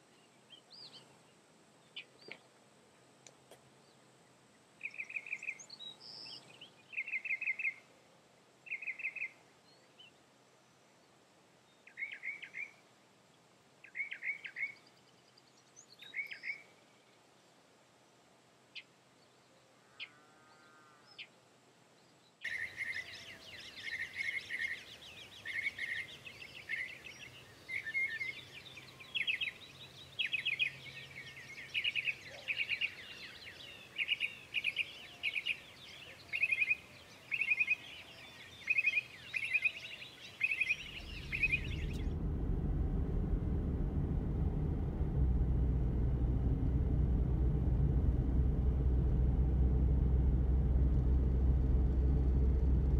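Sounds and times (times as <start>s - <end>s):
chirping calls: 38.6s - 42.0s
vehicle rumble: 40.6s - 52.9s.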